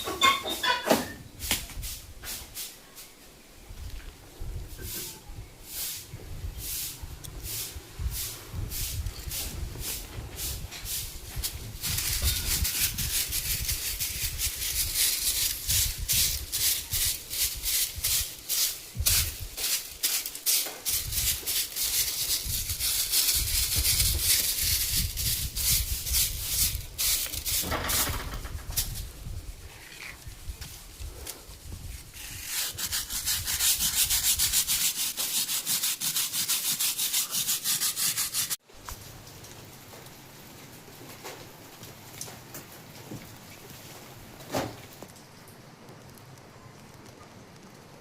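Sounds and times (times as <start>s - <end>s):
broom sweeping floor: 0.0s - 3.2s, 4.6s - 28.2s, 30.2s - 38.6s.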